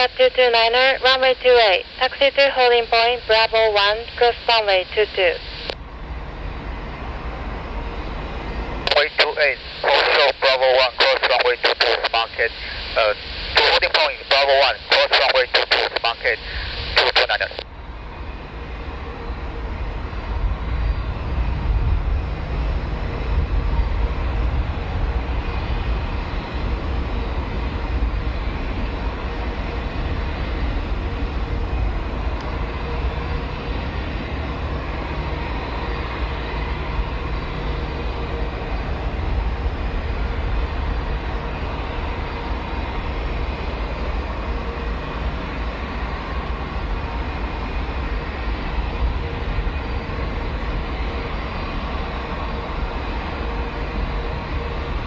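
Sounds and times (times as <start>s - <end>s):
jet engines idling: 0.0s - 55.0s.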